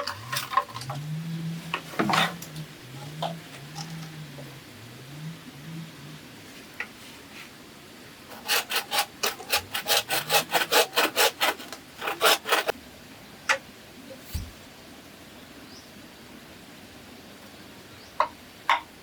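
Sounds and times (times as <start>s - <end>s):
hand saw cutting bamboo: 0.0s - 1.0s, 8.3s - 12.7s.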